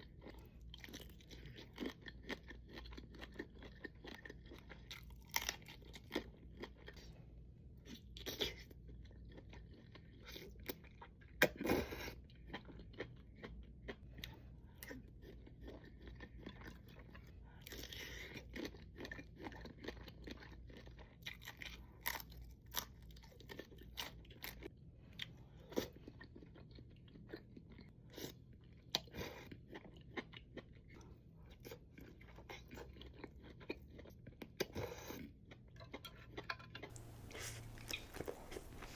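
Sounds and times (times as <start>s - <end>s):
person chewing and crunching food: 0.0s - 38.9s
faint low hum: 36.1s - 38.9s.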